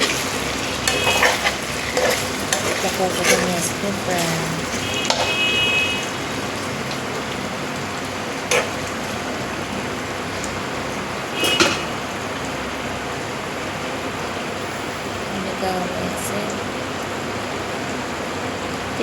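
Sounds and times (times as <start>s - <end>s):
curry hissing in a pan: 0.0s - 19.0s
metal spoon knocking pan: 0.8s - 5.5s.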